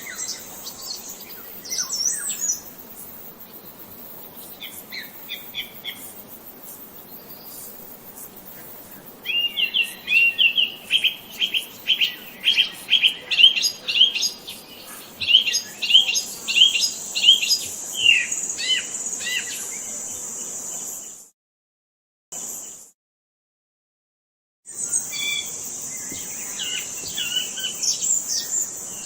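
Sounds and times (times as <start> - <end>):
songbird chirping: 0.0 - 2.8, 8.5 - 20.3, 24.8 - 29.0.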